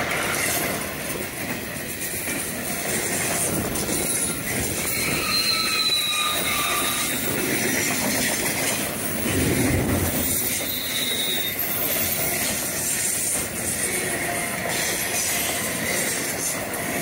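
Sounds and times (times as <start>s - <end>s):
freight train cars rolling: 0.0s - 17.0s
high-pitched wheel squeals: 3.9s - 7.8s, 10.0s - 12.6s.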